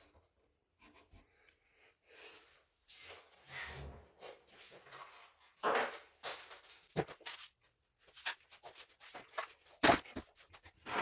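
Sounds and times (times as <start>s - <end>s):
objects being handled: 4.5s - 11.0s.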